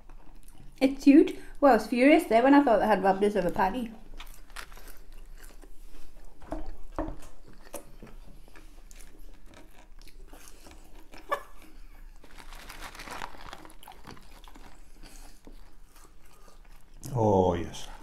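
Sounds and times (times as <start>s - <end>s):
chewing crunchy fries: 0.0s - 1.5s, 4.0s - 18.0s.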